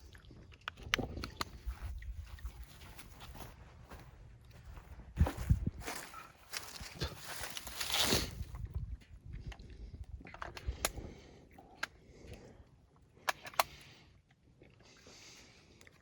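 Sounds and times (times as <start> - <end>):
rustling: 5.8 - 8.5.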